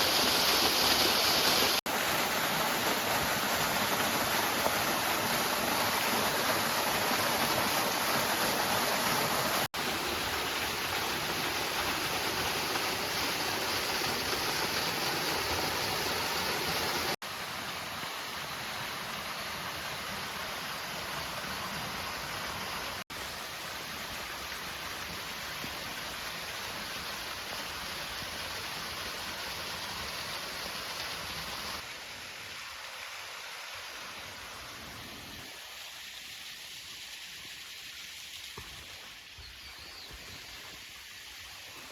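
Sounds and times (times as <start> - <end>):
rushing waterfall: 0.0 - 41.9.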